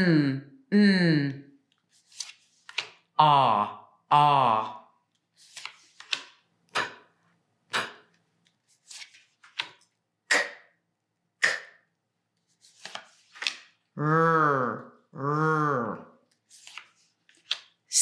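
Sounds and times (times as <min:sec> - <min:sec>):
person making phonics sounds: 0:03.1 - 0:05.1, 0:06.7 - 0:08.2, 0:10.3 - 0:10.7, 0:11.4 - 0:11.9, 0:13.9 - 0:16.3.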